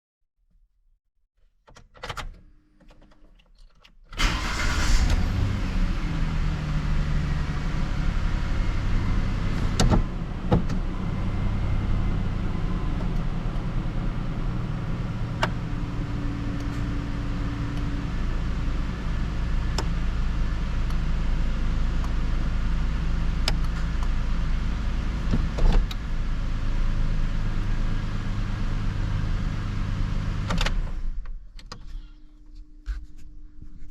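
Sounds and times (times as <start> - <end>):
car engine cranking and starting: 4.1 - 31.8
car engine idling: 4.2 - 30.4.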